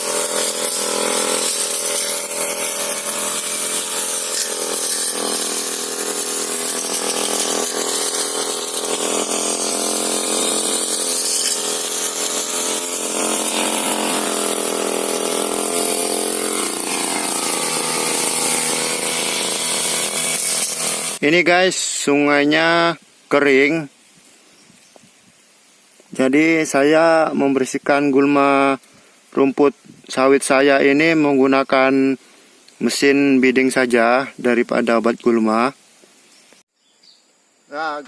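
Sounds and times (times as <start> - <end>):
brush cutter engine running: 0.0 - 21.2.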